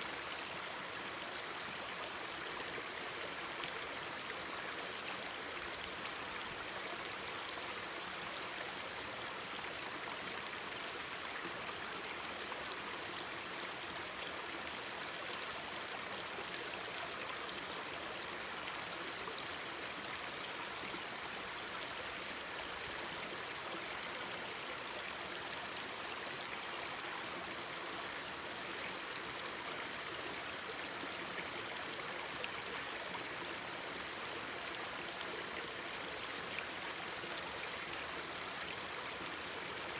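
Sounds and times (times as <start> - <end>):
stream babbling over rocks: 10.4 - 39.9.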